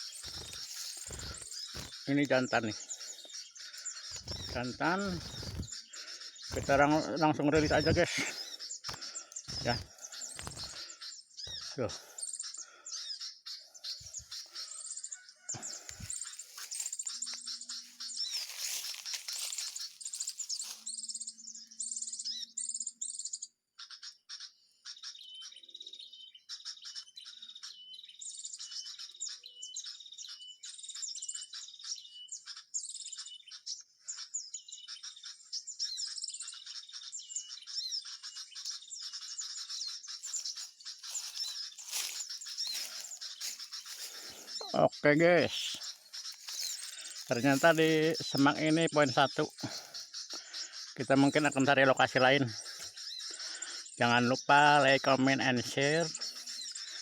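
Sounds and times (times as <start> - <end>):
small birds chirping: 0.0 - 57.0
rustling noise: 18.3 - 20.8.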